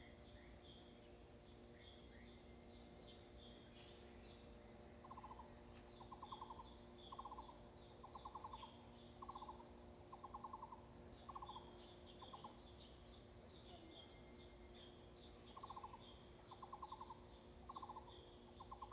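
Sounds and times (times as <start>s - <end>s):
faint steady hum: 0.0s - 18.9s
high bird chirps: 15.3s - 18.9s.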